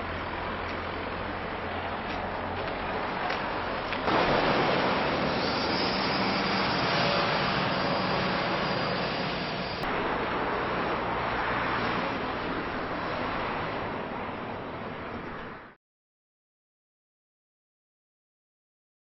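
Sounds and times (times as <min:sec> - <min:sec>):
loud rumbling with low hum: 0:00.0 - 0:15.1.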